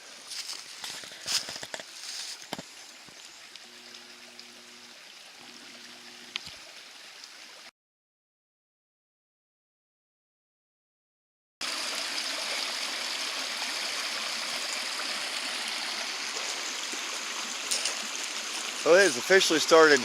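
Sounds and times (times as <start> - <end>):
running water hissing: 0.0 - 7.7, 11.6 - 20.0
short low hums: 3.6 - 6.4.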